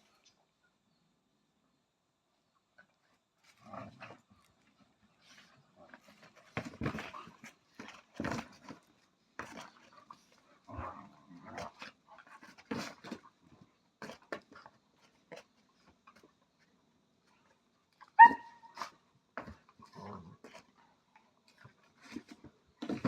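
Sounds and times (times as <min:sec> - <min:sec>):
puppy yelp: 0:18.2 - 0:18.8.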